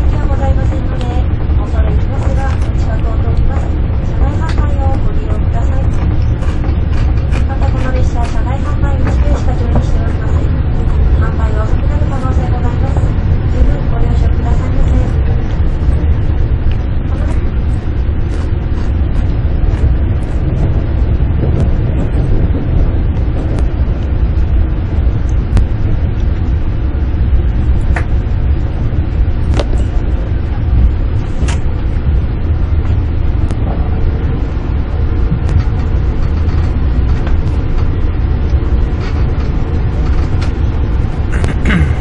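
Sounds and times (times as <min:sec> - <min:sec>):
train cabin rumble: 0:00.0 - 0:42.0.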